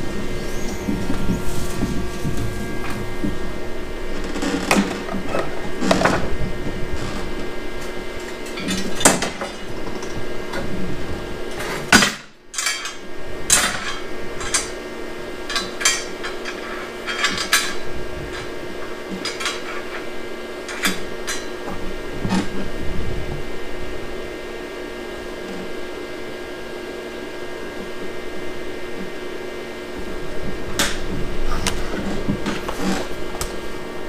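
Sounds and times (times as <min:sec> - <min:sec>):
faint steady hum: 0:00.0 - 0:34.0
steel tools clanking: 0:15.5 - 0:18.5.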